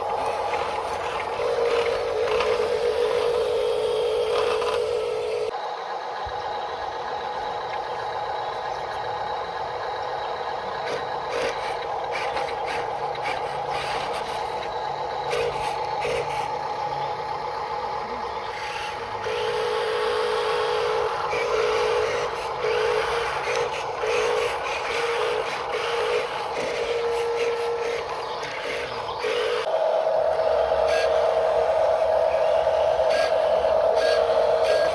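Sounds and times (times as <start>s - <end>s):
small electric motors whining: 0.0s - 34.9s
high pulsing tone: 29.6s - 34.9s.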